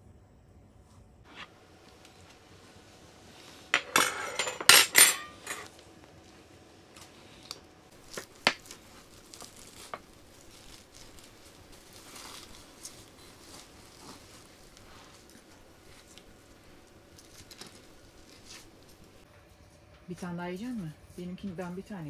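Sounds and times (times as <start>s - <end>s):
cutlery and dishes clinking: 3.8s - 5.7s.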